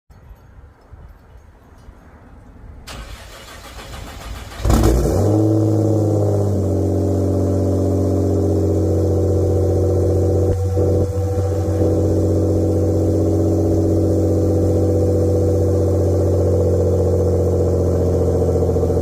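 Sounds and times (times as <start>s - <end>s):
engine cold start: 2.9s - 5.6s
engine high idle: 6.4s - 19.0s.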